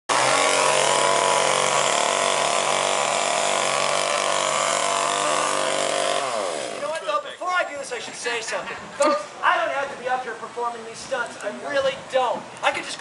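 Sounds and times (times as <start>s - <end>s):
chainsaw engine buzzing: 0.1s - 7.0s.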